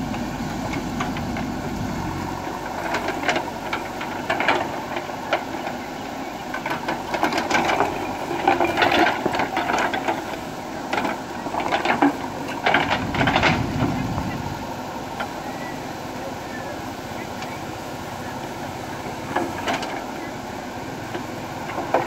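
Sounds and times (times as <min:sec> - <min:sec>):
diesel engine running: 0:00.0 - 0:22.0
metallic clanks and rattles: 0:06.5 - 0:14.3.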